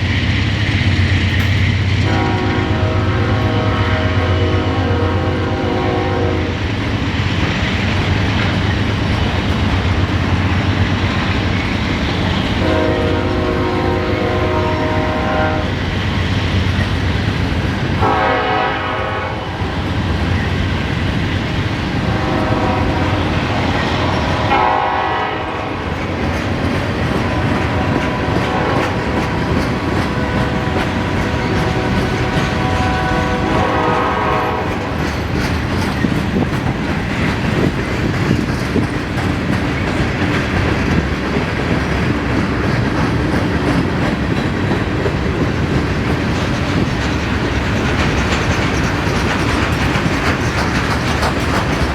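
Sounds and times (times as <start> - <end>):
low locomotive rumble: 0.0 - 51.9
train horn blasts: 2.0 - 6.6, 12.6 - 15.8, 18.0 - 19.7, 22.0 - 25.9, 27.1 - 35.1
wheels clacking over rail joints: 4.6 - 18.5, 19.5 - 51.9.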